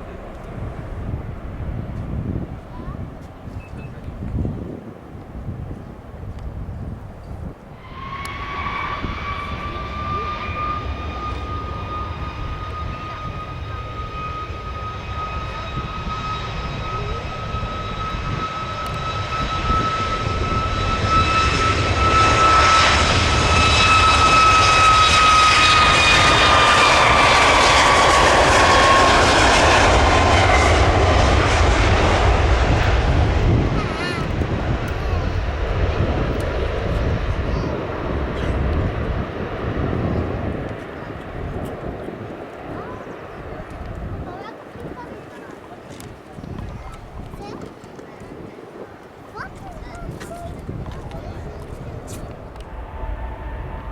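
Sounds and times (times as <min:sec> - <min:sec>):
jet taking off: 0:00.0 - 0:53.9.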